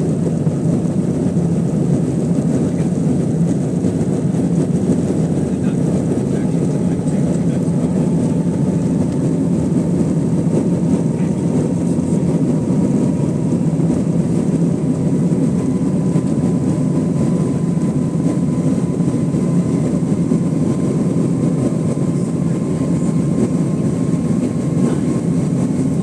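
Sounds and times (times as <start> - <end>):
airplane cabin engine rush: 0.0 - 26.0.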